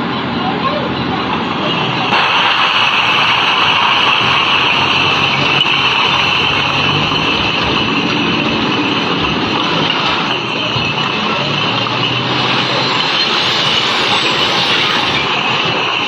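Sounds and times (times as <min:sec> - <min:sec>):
truck diesel engine under load: 0:00.0 - 0:16.0
high hiss: 0:01.2 - 0:16.0.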